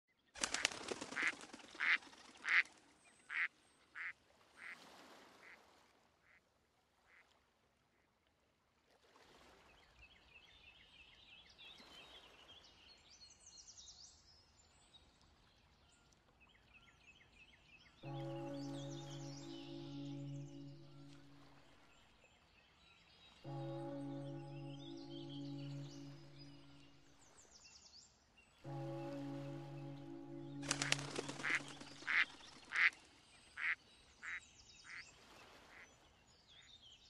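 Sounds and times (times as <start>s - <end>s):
duck quacking: 30.9s - 32.9s.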